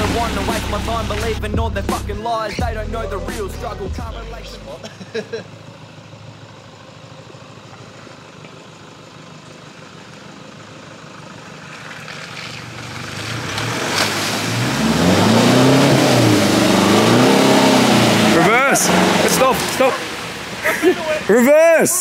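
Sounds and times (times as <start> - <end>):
water washing and splashing: 0.0 - 1.5, 11.4 - 21.8
truck engine revving: 0.0 - 21.9.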